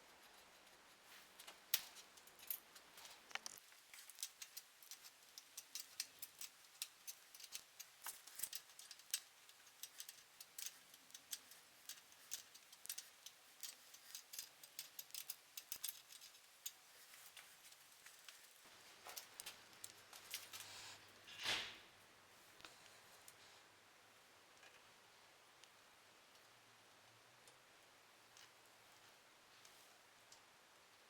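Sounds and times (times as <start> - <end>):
small hard parts clicking: 1.3 - 21.1.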